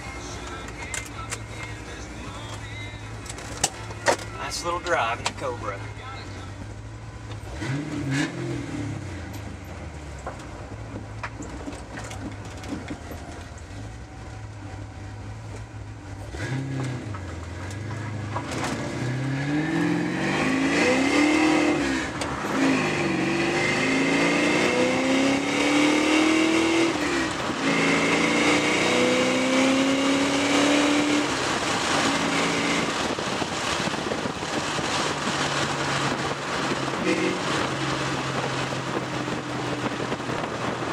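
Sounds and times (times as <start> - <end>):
car engine revving and accelerating: 7.2 - 13.2, 16.1 - 40.9.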